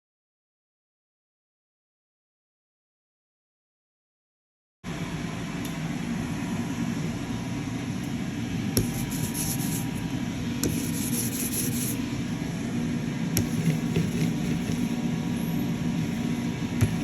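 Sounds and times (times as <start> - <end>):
low rumbling hum: 4.9 - 17.0
rapid rubbing or scraping: 8.8 - 10.0, 10.6 - 12.0, 13.4 - 15.0.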